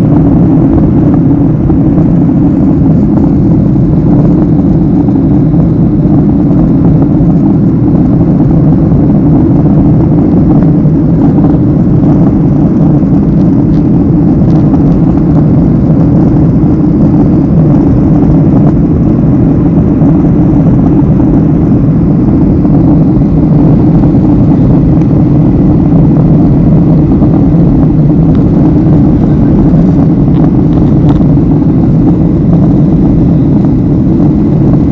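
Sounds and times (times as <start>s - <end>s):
jet engine drone in cabin: 0.0s - 34.9s
rushing air: 0.0s - 34.9s.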